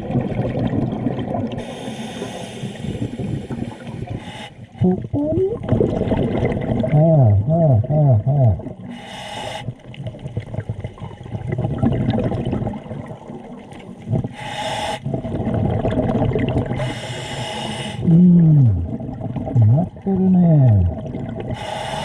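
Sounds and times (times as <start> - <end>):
gurgling exhaled bubbles: 0.0 - 9.0, 9.7 - 14.4, 15.0 - 22.0
regulator inhale hisses: 1.6 - 4.7, 8.9 - 9.8, 14.3 - 15.1, 16.8 - 18.0, 21.6 - 22.0.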